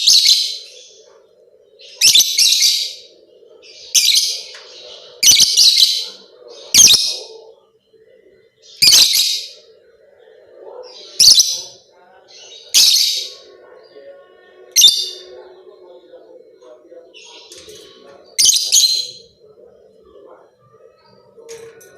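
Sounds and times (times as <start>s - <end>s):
faint low murmur: 9.4s - 21.9s.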